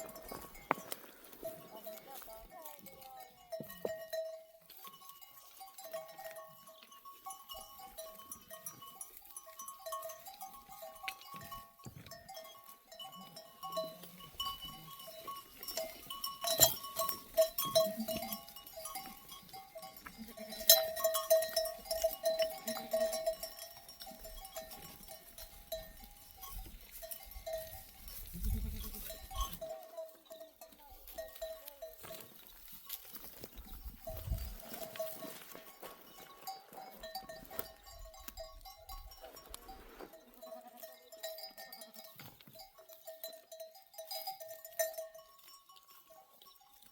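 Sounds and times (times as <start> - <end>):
sheep and goats bleating: 0.0 - 46.9.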